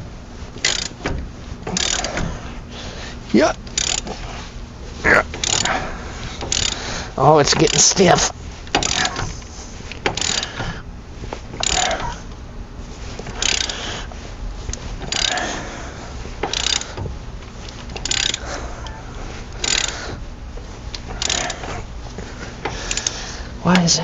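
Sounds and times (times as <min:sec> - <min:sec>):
ratchet wrench clicking: 0:00.6 - 0:01.1, 0:01.7 - 0:02.3, 0:03.4 - 0:04.3, 0:05.3 - 0:05.8, 0:06.4 - 0:09.3, 0:09.9 - 0:10.8, 0:11.6 - 0:12.2, 0:13.2 - 0:14.0, 0:14.7 - 0:15.6, 0:16.4 - 0:20.2, 0:20.9 - 0:21.8, 0:22.6 - 0:23.2.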